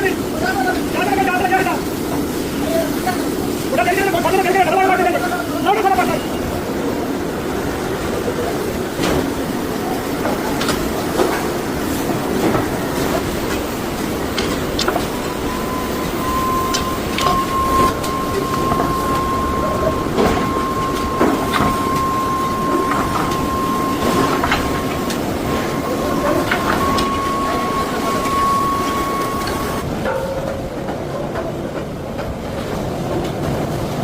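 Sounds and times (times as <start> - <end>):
factory machinery rumble and whine: 0.0 - 34.0
metallic clanks and knocks: 29.4 - 32.4.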